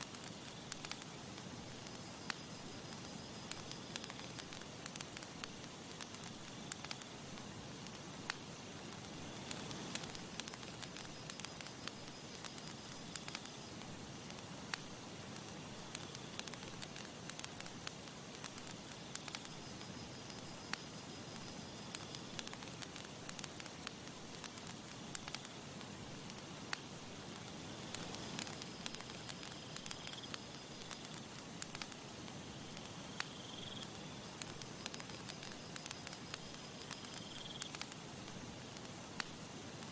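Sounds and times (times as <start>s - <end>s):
burning wood popping: 0.0s - 39.9s
campfire crackling: 0.0s - 39.9s.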